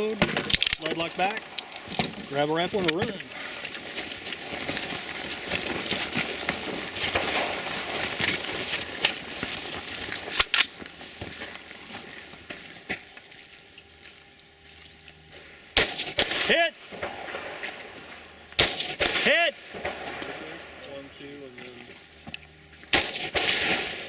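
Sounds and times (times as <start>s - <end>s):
footsteps running: 2.3s - 14.2s
rifle clicks: 10.3s - 11.0s.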